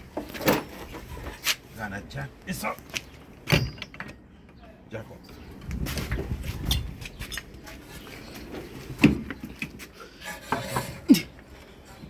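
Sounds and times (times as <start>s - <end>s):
metal clanks and knocks: 3.4s - 4.3s.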